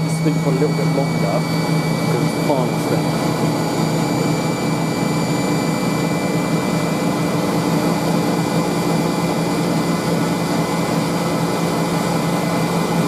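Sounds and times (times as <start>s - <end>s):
high whine: 0.0s - 13.0s
spin dryer motor humming: 0.0s - 13.0s.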